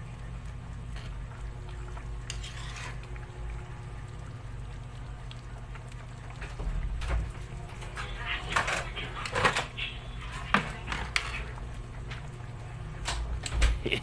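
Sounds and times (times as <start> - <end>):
broth simmering in a pan: 0.0 - 14.0
utensil scrapes: 2.3 - 3.0.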